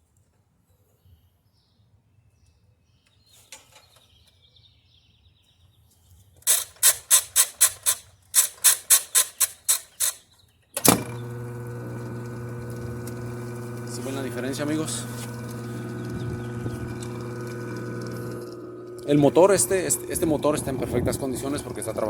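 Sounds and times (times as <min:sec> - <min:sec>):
washer motor humming: 0:10.9 - 0:22.0.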